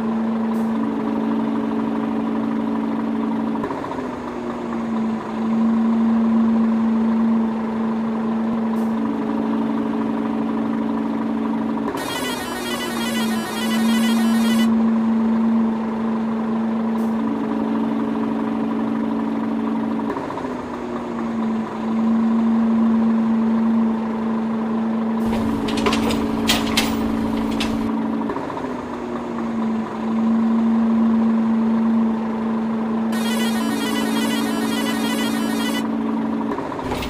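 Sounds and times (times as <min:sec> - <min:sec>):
truck engine idling: 0:25.2 - 0:28.2.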